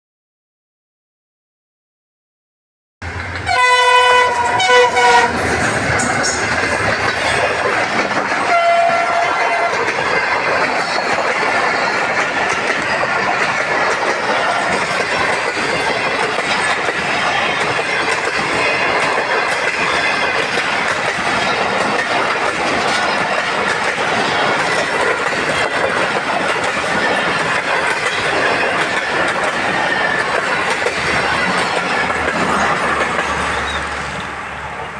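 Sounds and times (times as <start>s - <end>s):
train wheels clattering on rails: 3.0s - 34.9s
train horn: 3.5s - 5.6s, 8.4s - 9.9s.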